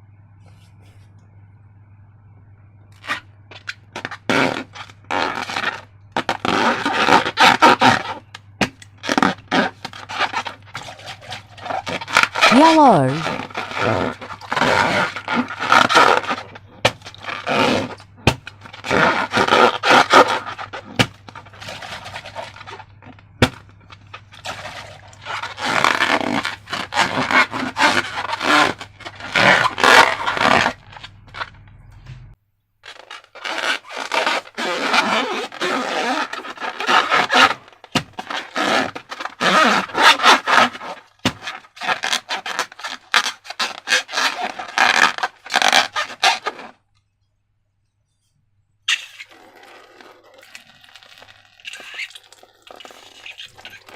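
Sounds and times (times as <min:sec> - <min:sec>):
slime squelching by hand: 0:09.0 - 0:31.5, 0:48.9 - 0:53.9.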